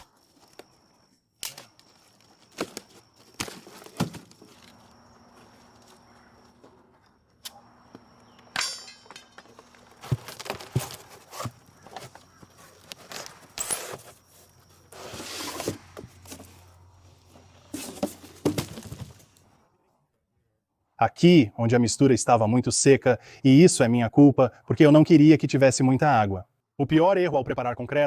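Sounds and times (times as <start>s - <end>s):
foam forms knocking and scraping: 17.7s - 19.2s.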